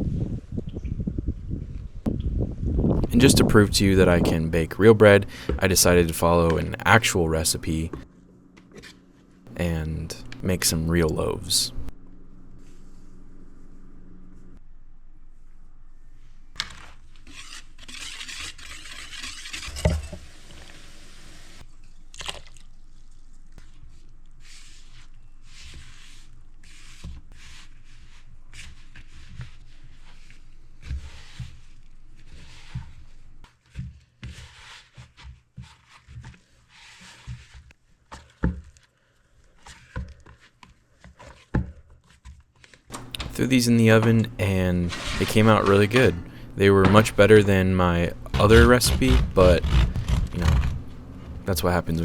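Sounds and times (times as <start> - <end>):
dough squishing and scraping: 16.6 - 20.9, 23.5 - 52.0.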